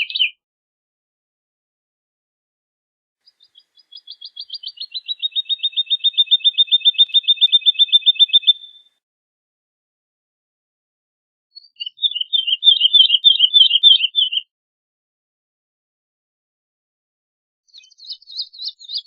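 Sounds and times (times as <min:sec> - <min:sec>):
bird singing fast trill: 0:00.0 - 0:00.4, 0:03.2 - 0:08.9, 0:11.6 - 0:14.5, 0:17.7 - 0:19.0.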